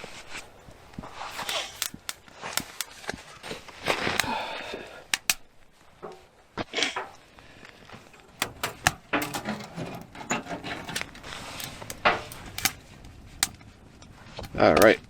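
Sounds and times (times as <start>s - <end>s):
paper rustling: 1.3s - 2.9s, 8.1s - 13.6s
sharp clicks and knocks: 1.3s - 2.9s, 5.1s - 5.4s, 8.1s - 13.6s.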